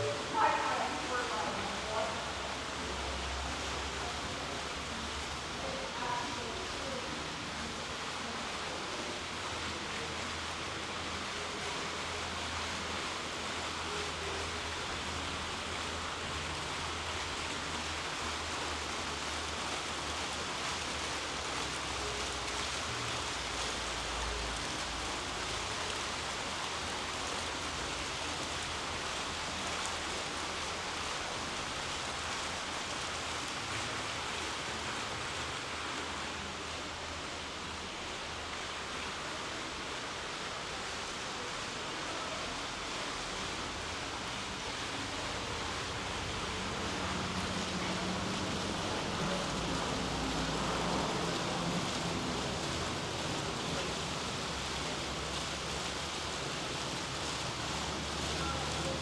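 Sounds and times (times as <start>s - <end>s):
steady rushing noise: 42.6s - 59.0s.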